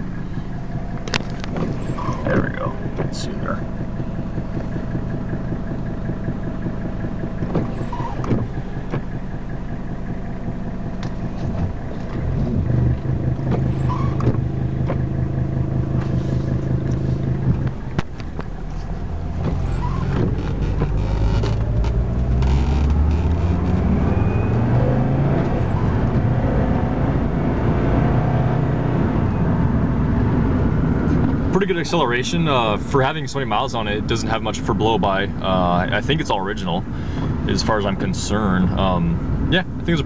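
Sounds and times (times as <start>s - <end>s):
diesel car engine accelerating: 0.0s - 40.0s
creaks and clicks: 0.9s - 3.2s, 15.9s - 26.3s.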